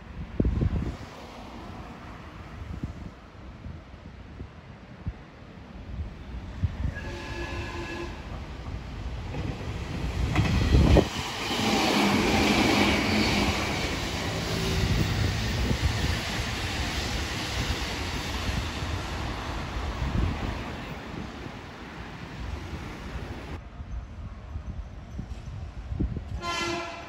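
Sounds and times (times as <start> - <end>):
electric trains running: 6.7 - 23.6.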